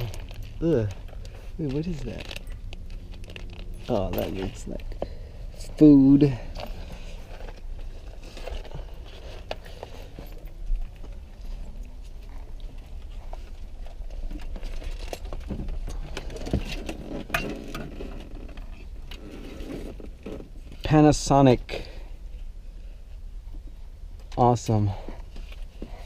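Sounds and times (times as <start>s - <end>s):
small objects clicking and rattling: 0.0s - 4.4s.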